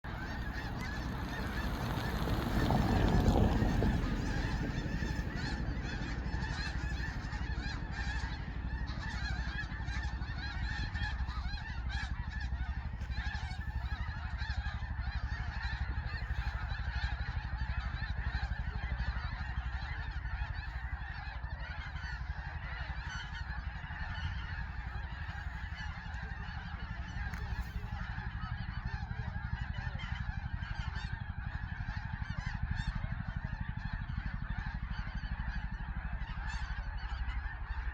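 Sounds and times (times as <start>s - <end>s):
low rumble: 0.0s - 15.3s
flock of geese honking: 0.0s - 37.9s.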